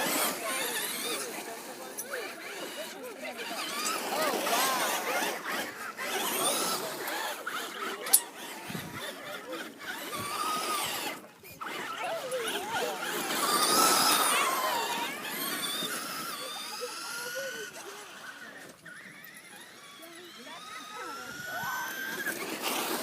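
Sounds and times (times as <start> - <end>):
remote-control car motor whining: 0.0 - 23.0.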